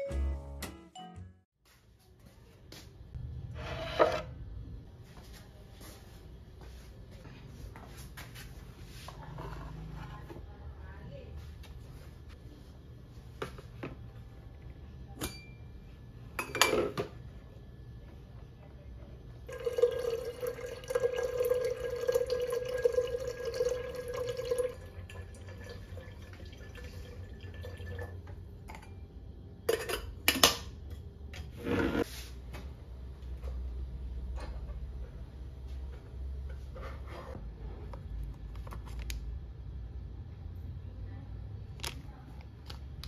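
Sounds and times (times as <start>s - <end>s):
water filling a kettle: 19.5s - 28.3s.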